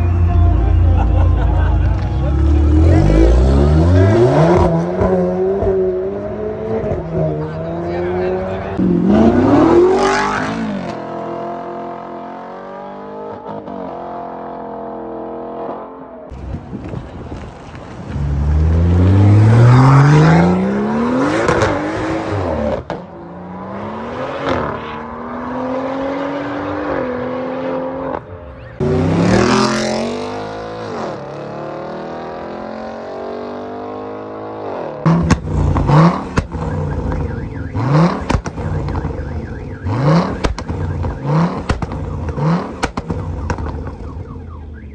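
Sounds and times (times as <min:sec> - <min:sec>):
parked car engine revving blips: 0:35.0 - 0:44.9.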